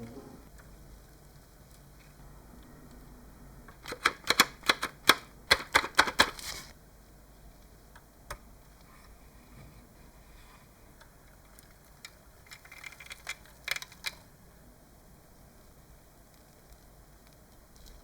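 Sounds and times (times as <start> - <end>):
sharp clicks: 3.7 - 6.4.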